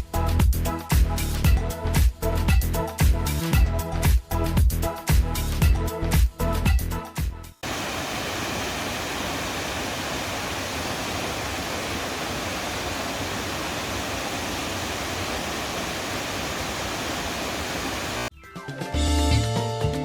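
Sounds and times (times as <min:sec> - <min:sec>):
waterfall rushing: 0:07.6 - 0:18.3.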